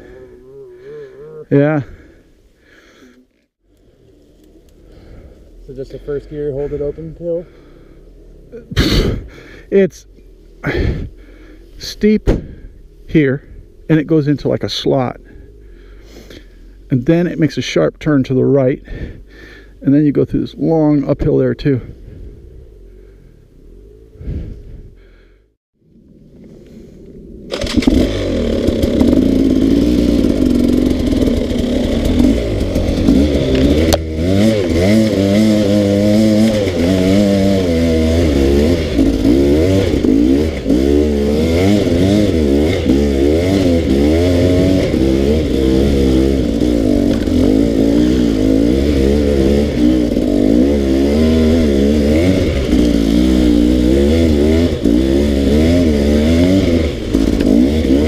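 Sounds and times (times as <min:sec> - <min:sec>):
dirt bike engine revving: 0:00.0 - 0:03.1, 0:21.8 - 0:24.6, 0:27.5 - 0:58.0.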